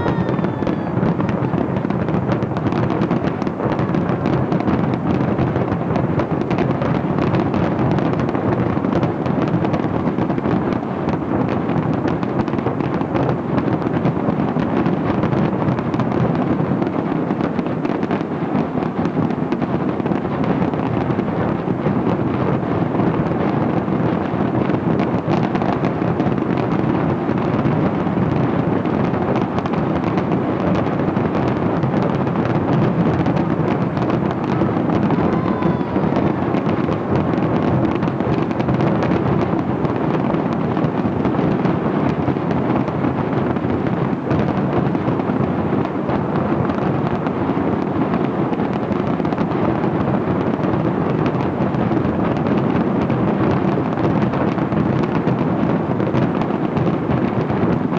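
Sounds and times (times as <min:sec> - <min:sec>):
fireworks bangs and bursts: 0:00.0 - 0:57.9.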